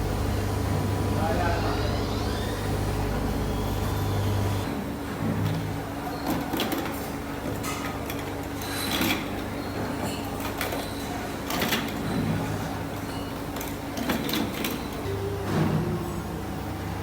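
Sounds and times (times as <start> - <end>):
machinery hum: 0.0 - 5.2, 14.5 - 17.0.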